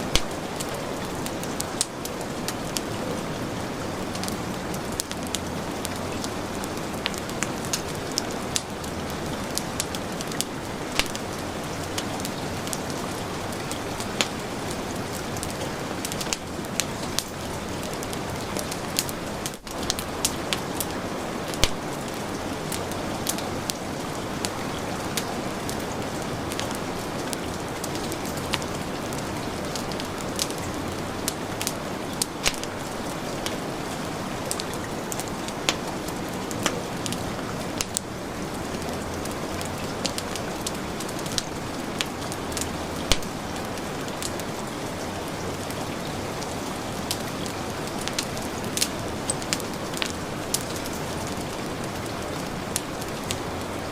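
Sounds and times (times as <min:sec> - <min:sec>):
heavy rain falling: 0:00.0 - 0:53.9
wood fire crackling: 0:00.0 - 0:53.9.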